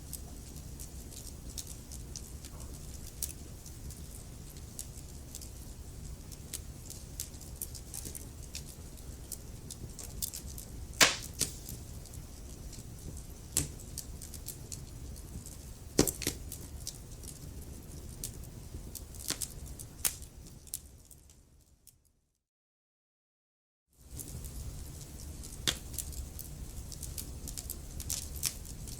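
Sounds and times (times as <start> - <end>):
wood fire crackling: 0.0 - 21.5, 24.0 - 28.9
loud sharp pops: 11.0 - 11.8.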